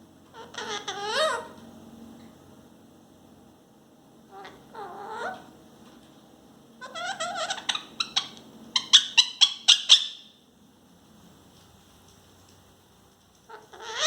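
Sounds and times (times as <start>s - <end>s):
parrot squawks: 0.4s - 1.6s, 4.3s - 5.5s, 6.8s - 10.3s, 13.5s - 14.0s
parrot warbling chatter: 0.4s - 1.6s, 4.3s - 5.5s, 6.8s - 10.3s, 13.5s - 14.0s.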